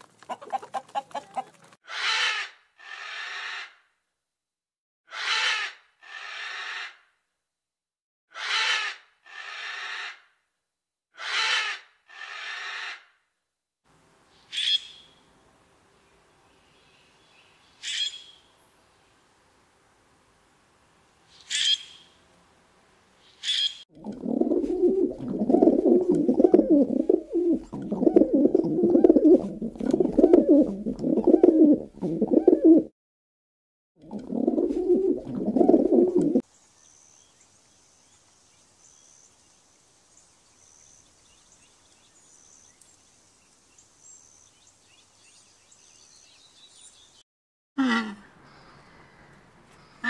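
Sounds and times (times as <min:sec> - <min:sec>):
low fluttering bird calls: 0:23.4 - 0:32.9, 0:34.2 - 0:36.4.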